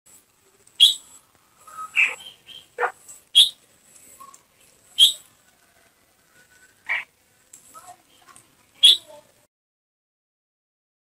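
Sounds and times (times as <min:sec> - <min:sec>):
bird chirps: 0:00.8 - 0:03.6, 0:05.0 - 0:05.3, 0:08.8 - 0:09.2.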